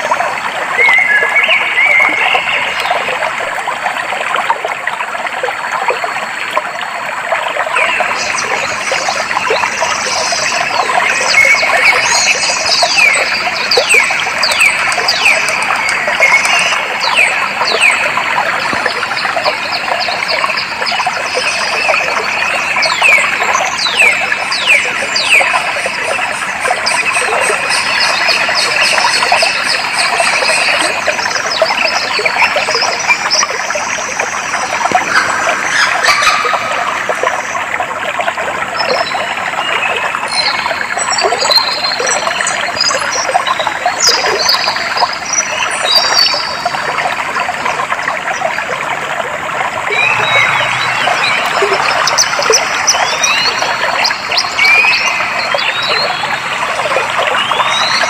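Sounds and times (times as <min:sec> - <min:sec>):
stream flowing: 0:00.0 - 0:58.0
birds whistling and chirping: 0:49.9 - 0:56.2.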